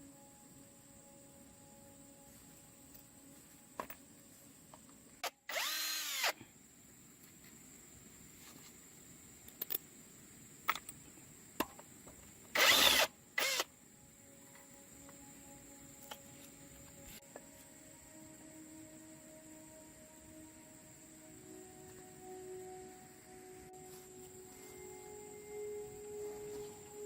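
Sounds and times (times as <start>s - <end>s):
power tool whirring: 5.2s - 6.4s, 12.5s - 13.7s.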